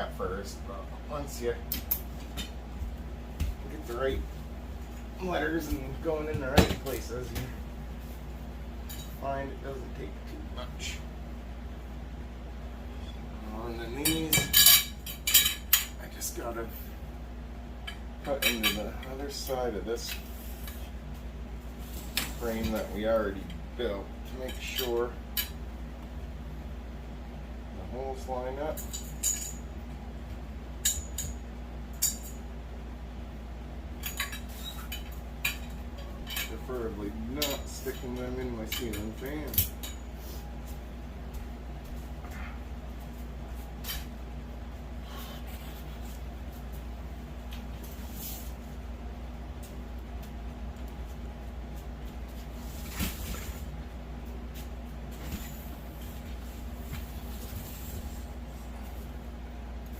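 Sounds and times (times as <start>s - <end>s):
steady low hum: 0.0s - 59.9s
metal poles clinking: 28.7s - 29.6s.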